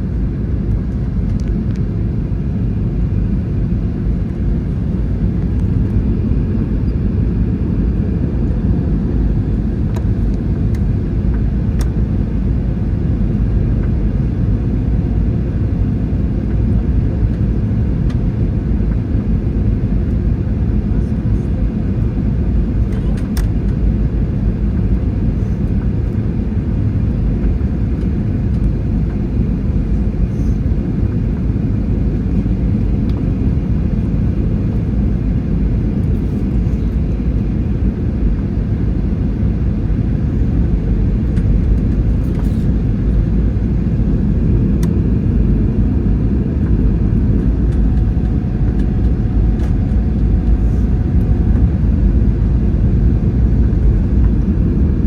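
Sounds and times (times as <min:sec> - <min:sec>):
jet engines and cabin airflow rumble: 0:00.0 - 0:55.0.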